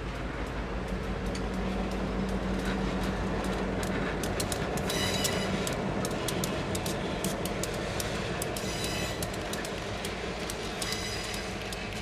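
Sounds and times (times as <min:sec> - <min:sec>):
locomotive engine drone: 0:00.0 - 0:12.0.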